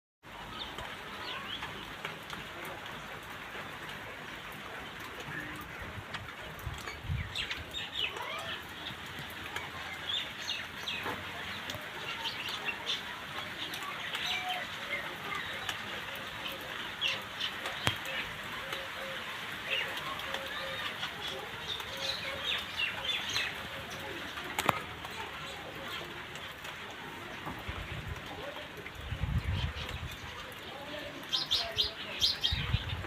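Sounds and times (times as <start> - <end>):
birds chirping: 0.3 - 33.0.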